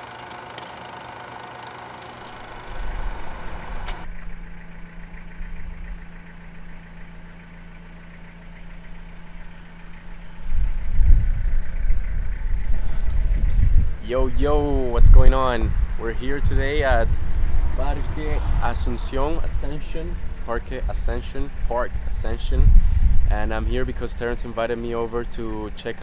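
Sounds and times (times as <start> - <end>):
car engine idling: 2.1 - 26.0
wind rumbling on microphone: 10.2 - 24.6.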